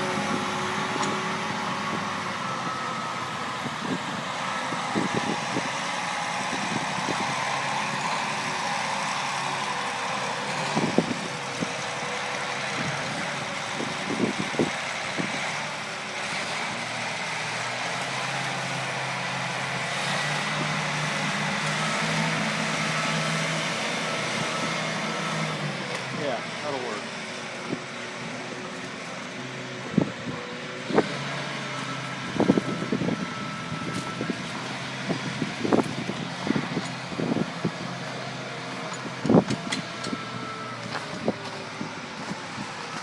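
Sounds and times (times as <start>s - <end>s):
tractor diesel engine idling: 0.0s - 43.0s.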